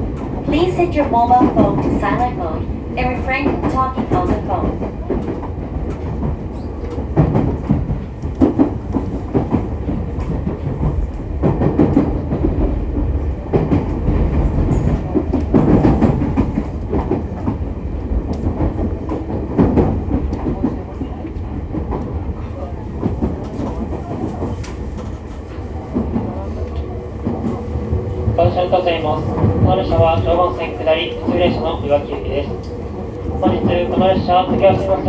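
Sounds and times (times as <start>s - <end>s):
clickety-clack of rail joints: 0.0s - 35.0s
train wheels rumbling on rail: 0.0s - 35.0s.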